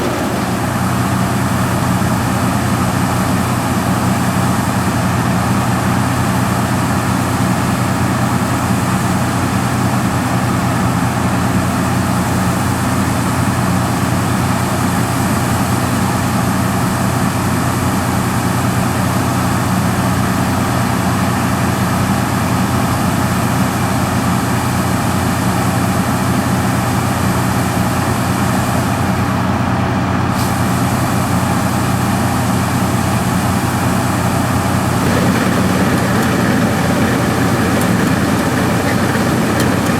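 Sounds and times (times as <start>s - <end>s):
heavy machinery engine droning: 0.0s - 6.8s, 32.7s - 39.9s.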